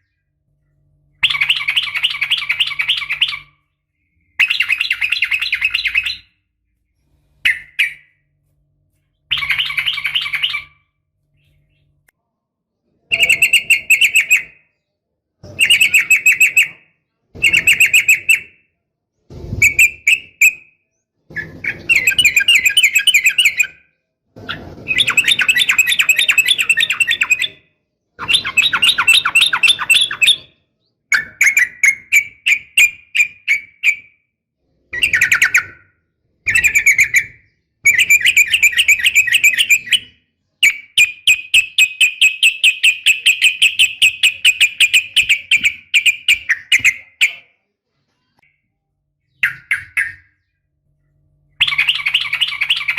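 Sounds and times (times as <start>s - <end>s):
bird chattering calls: 1.2s - 6.3s, 9.3s - 10.8s, 51.6s - 52.9s.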